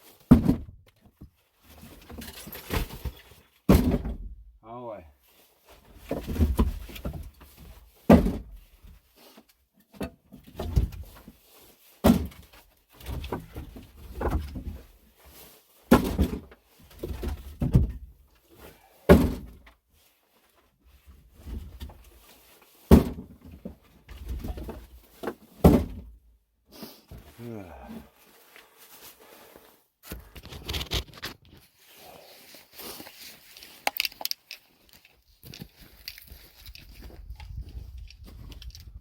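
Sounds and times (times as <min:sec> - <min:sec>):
heavy thumps and knocks: 0:00.3 - 0:00.9, 0:19.1 - 0:19.7, 0:22.9 - 0:24.9, 0:25.6 - 0:26.2
scuffing and handling noise: 0:27.0 - 0:39.0.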